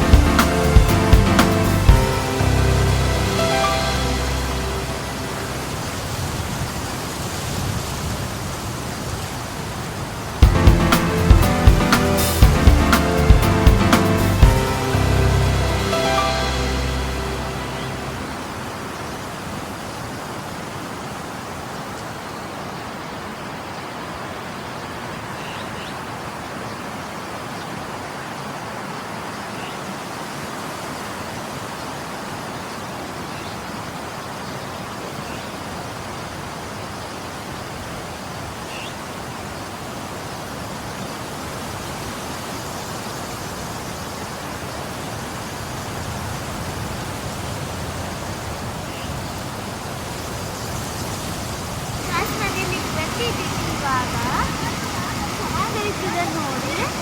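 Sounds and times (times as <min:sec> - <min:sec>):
falling water rushing: 0:00.0 - 0:22.7, 0:39.6 - 0:57.0.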